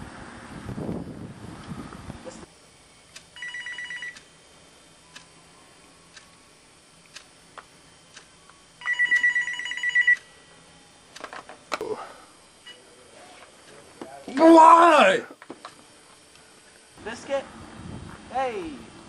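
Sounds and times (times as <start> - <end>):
telephone ringing electronic trill: 3.4 - 4.2, 8.8 - 10.4.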